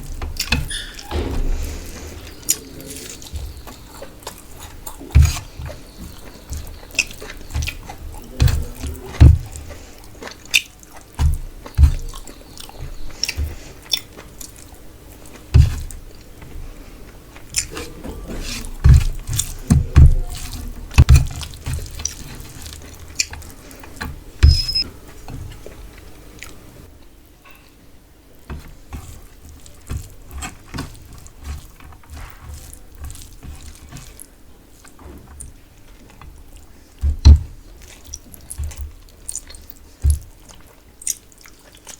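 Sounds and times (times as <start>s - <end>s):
person chewing food: 0.0s - 41.9s
soft low thumps: 0.1s - 9.6s.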